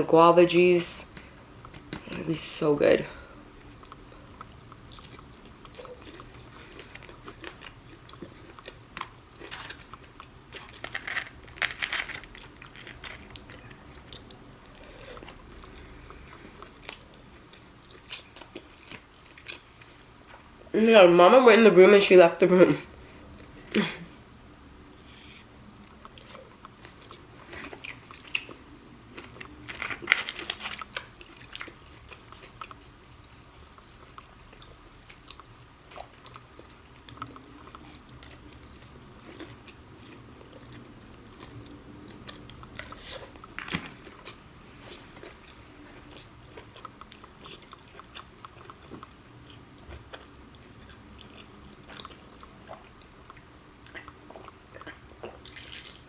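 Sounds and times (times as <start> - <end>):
chewing and crunching food: 0.6 - 20.6, 25.1 - 56.0.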